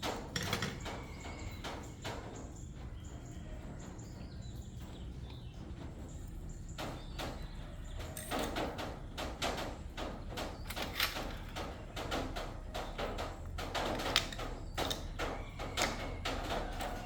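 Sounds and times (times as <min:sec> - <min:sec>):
metal parts and tools clanking: 0:00.1 - 0:01.0, 0:08.1 - 0:08.8, 0:10.6 - 0:12.0, 0:12.7 - 0:17.0.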